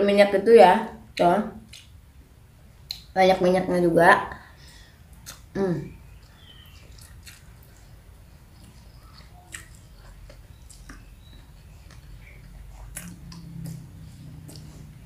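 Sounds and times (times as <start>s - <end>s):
wet mouth clicks: 1.7s - 2.0s, 5.1s - 5.5s, 8.6s - 14.9s
chewing noodles: 6.1s - 15.0s.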